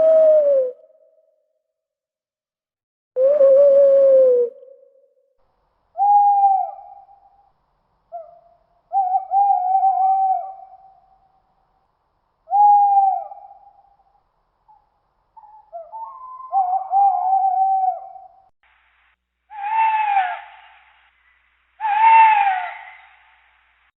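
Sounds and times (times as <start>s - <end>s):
owl hooting: 6.0s - 7.4s, 8.1s - 11.3s, 12.4s - 14.0s, 14.7s - 18.5s, 19.5s - 23.5s.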